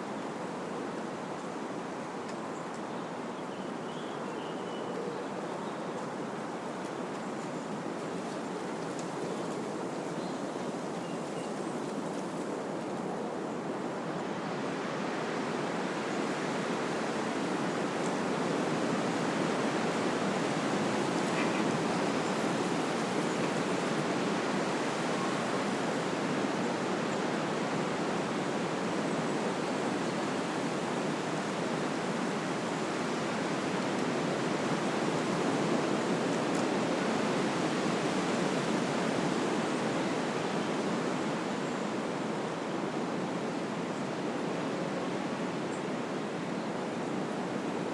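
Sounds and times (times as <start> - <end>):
wind rushing through trees: 5.4 - 47.9.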